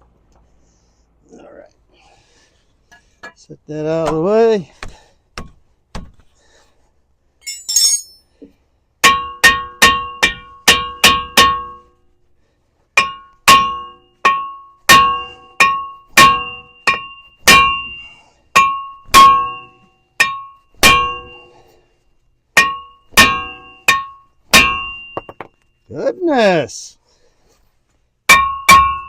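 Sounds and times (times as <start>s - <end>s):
hammer striking steel disc: 7.4s - 8.2s, 9.0s - 11.9s, 13.0s - 18.0s, 18.6s - 21.6s, 22.6s - 25.6s, 28.3s - 29.0s.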